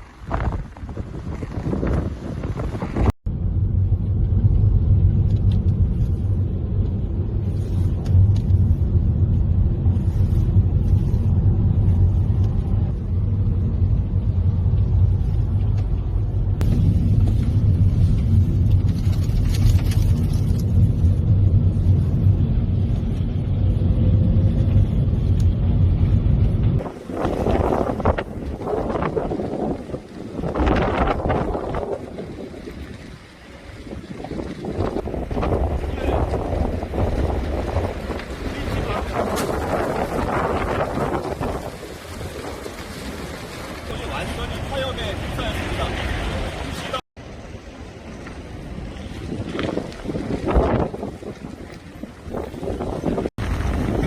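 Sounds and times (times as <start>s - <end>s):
loud low rumble: 0.0s - 29.8s.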